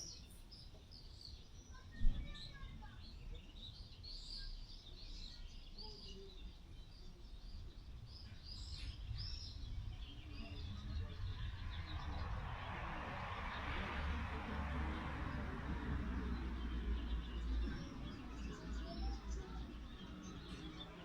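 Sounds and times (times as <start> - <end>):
small birds chirping: 0.0 - 21.0
low rumble of wind: 6.8 - 21.0.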